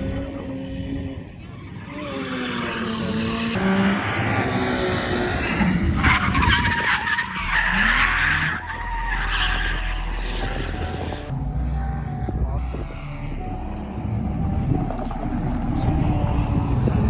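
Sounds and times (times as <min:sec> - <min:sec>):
car engine running: 0:07.4 - 0:17.0.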